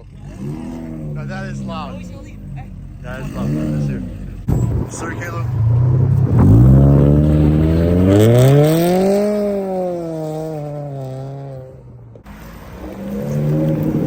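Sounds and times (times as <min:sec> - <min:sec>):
car with loud exhaust accelerating: 0:00.0 - 0:14.0.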